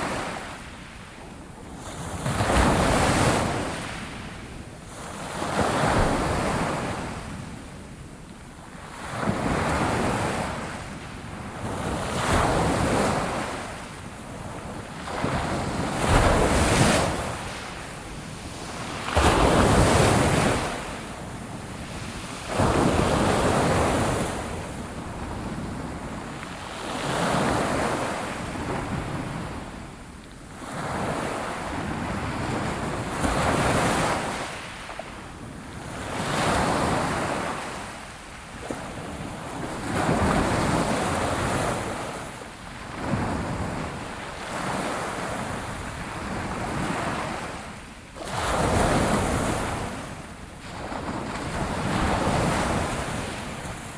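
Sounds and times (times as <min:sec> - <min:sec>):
sea waves breaking on shore: 0:08.8 - 0:29.8.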